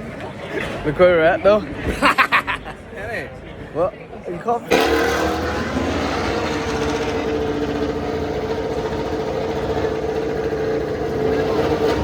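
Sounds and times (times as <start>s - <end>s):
racing motorcycle engines: 4.7s - 12.0s.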